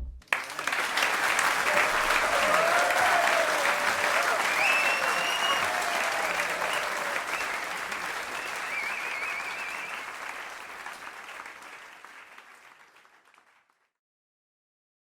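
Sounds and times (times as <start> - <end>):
audience applause: 0.2 - 13.8
high wavering cry from crowd: 1.6 - 8.1.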